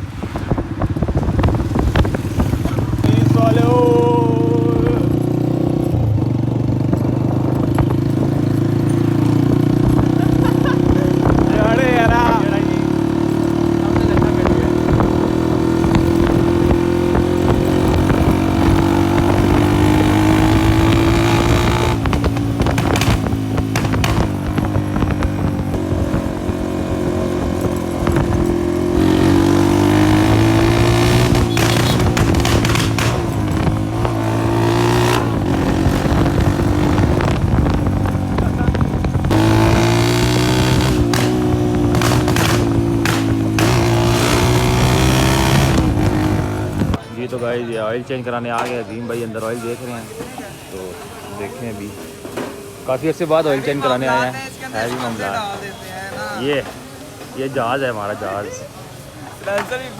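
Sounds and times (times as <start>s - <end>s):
exhaust cracks: 0.0s - 47.1s
loud motorcycle engine running: 0.6s - 47.0s.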